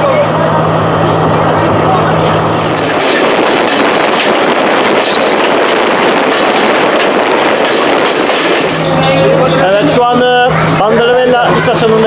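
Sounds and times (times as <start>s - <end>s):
train wheels clattering on rails: 2.6s - 10.3s.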